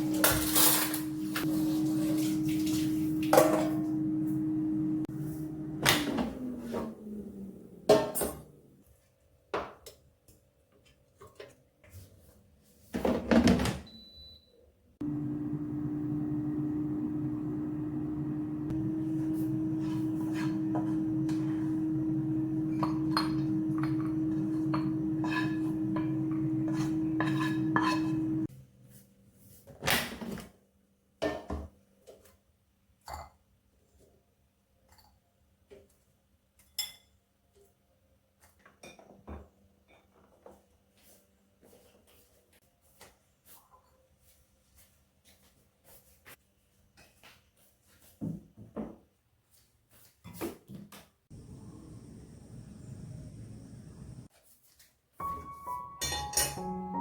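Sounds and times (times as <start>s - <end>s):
kitchenware clattering: 0.0s - 4.0s, 18.9s - 28.5s, 55.9s - 56.7s
microwave oven humming: 0.0s - 8.4s, 15.0s - 28.5s, 51.3s - 54.3s.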